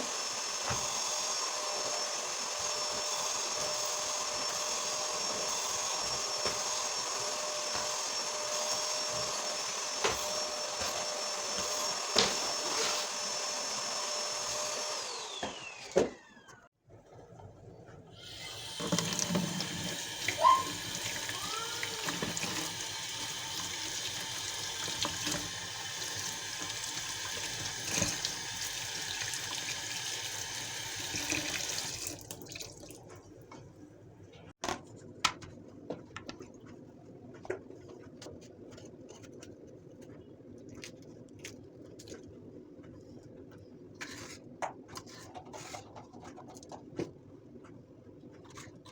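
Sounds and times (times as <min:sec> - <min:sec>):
water running from tap into sink: 0:18.4 - 0:33.1.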